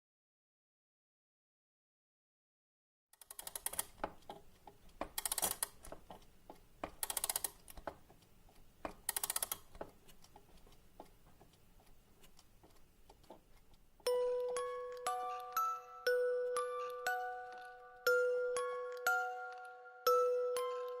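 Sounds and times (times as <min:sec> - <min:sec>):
rapid rattling clicks: 0:03.2 - 0:13.6
scattered clicks: 0:03.2 - 0:15.7.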